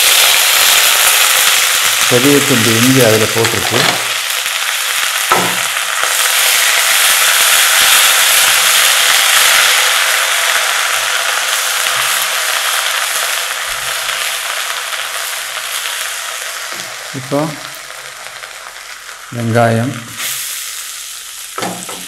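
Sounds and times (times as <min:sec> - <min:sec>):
paste sizzling in butter: 0:00.0 - 0:22.0.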